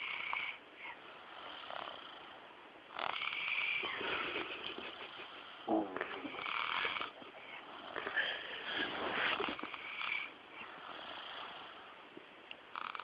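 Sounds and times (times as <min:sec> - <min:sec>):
dog snoring: 0:00.0 - 0:12.0, 0:12.7 - 0:13.0
dog snort: 0:02.9 - 0:12.0.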